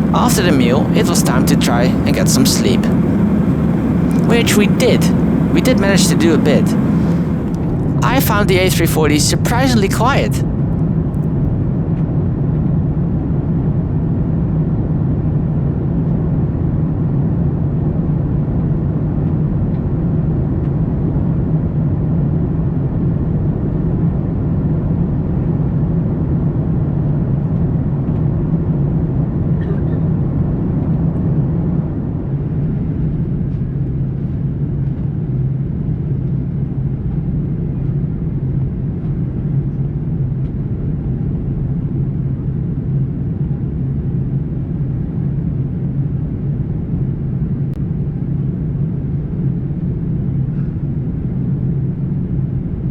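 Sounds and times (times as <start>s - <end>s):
airplane cabin engine hum: 0.0s - 11.6s.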